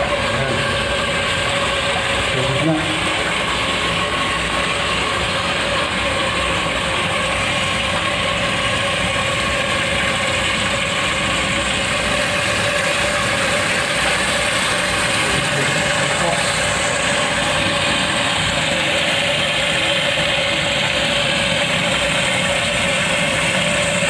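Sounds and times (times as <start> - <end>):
water running into toilet tank: 0.0 - 24.0.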